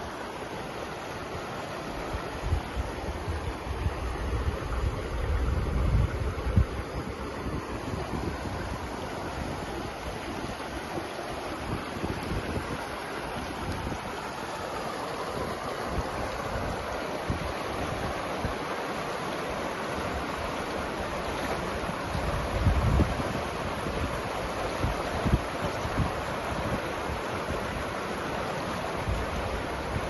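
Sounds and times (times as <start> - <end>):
river water rushing: 0.0 - 30.0
wind buffeting microphone: 2.4 - 14.4, 21.7 - 27.8.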